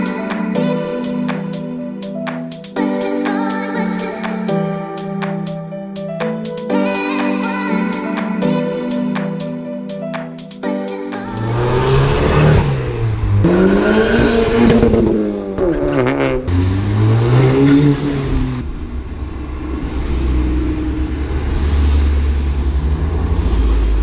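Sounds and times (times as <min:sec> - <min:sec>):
car engine revving: 0:11.2 - 0:24.0.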